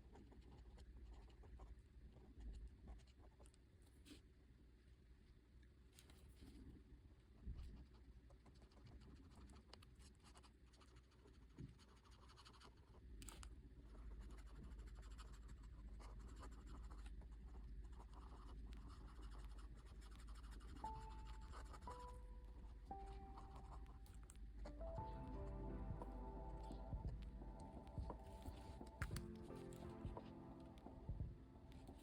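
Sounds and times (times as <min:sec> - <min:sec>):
soft held music notes: 0:18.6 - 0:32.0.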